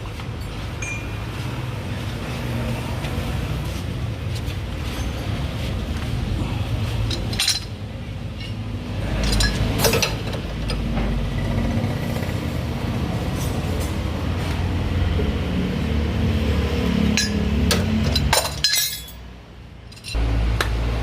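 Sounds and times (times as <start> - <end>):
metal tools clinking: 0.4 - 1.2, 7.0 - 10.8, 17.1 - 20.2.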